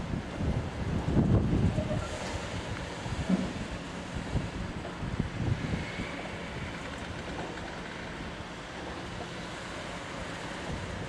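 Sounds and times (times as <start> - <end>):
wind on microphone: 0.0 - 7.3
train wagons rumbling on rails: 0.0 - 11.0.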